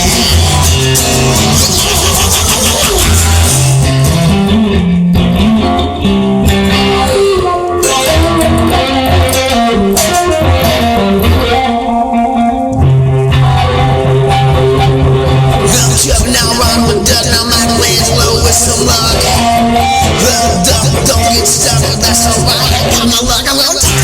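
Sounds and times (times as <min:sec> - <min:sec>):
bass line: 0:00.0 - 0:24.0
electric guitar melody: 0:00.0 - 0:24.0.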